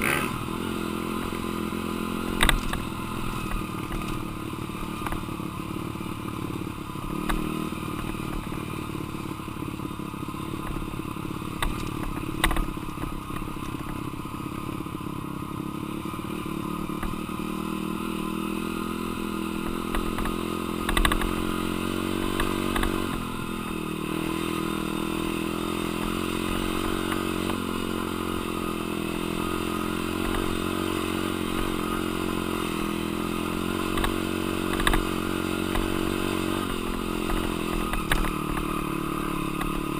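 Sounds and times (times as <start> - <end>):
dirt bike engine revving: 0.0 - 14.8, 15.4 - 39.9.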